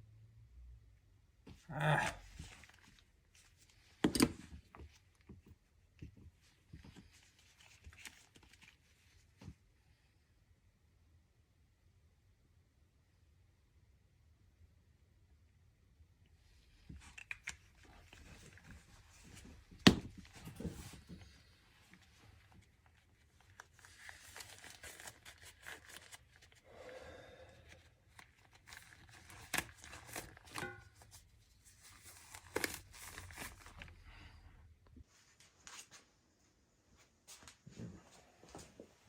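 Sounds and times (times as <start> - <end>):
rustling and crinkling: 2.3 - 9.7, 16.5 - 26.6, 27.7 - 39.0.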